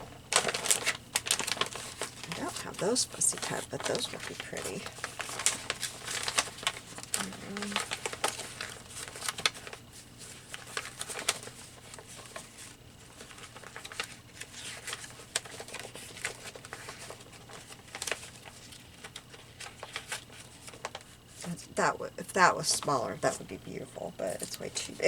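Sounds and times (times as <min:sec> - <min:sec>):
paper rustling and crinkling: 0:00.0 - 0:21.7.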